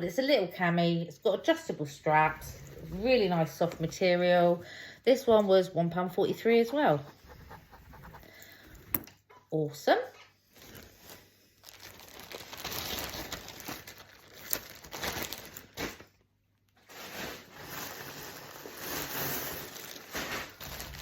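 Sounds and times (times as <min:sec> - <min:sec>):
plastic packaging rustling: 0:10.6 - 0:16.2, 0:16.8 - 0:21.0.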